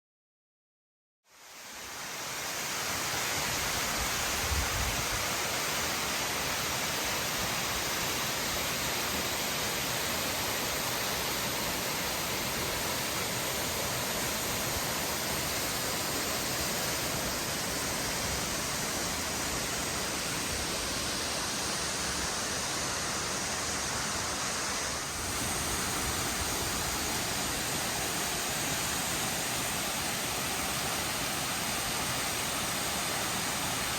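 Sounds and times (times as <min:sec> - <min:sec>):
waterfall roaring: 0:01.9 - 0:33.9.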